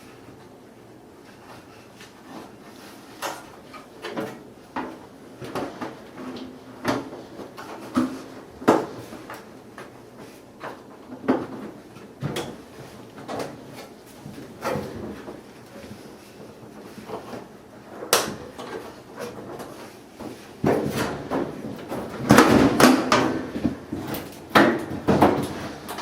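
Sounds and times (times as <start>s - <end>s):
metal dryer parts knocking and scraping: 10.6s - 26.0s.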